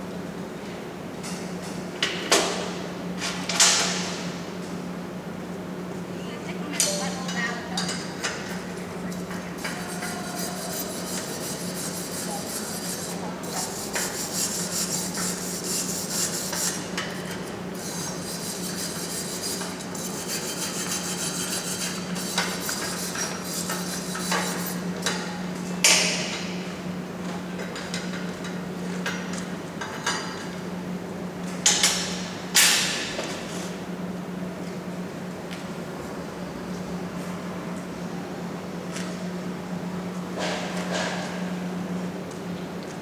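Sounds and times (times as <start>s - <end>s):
steady low hum: 4.4s - 27.2s
scraping on metal: 9.1s - 24.9s.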